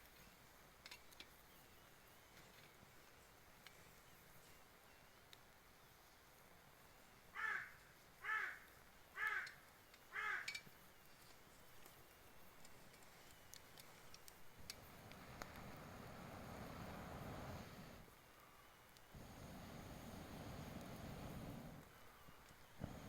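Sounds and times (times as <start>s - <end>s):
crow cawing: 7.4s - 10.6s
faint ticks: 9.4s - 17.6s, 18.9s - 23.0s
low rushing haze: 14.6s - 18.2s, 19.1s - 22.2s, 22.8s - 23.0s.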